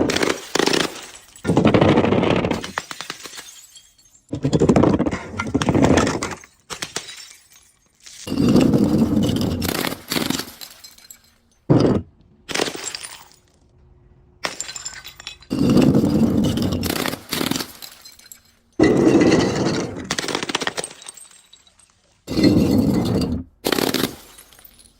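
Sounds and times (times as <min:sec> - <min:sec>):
glass crunching and shattering: 0:00.0 - 0:13.7, 0:14.4 - 0:24.9
glass cracking: 0:14.4 - 0:24.9.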